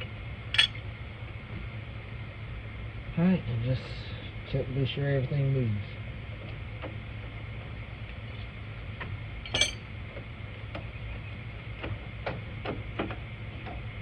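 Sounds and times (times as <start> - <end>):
steady low hum: 0.0 - 3.2, 7.2 - 10.6.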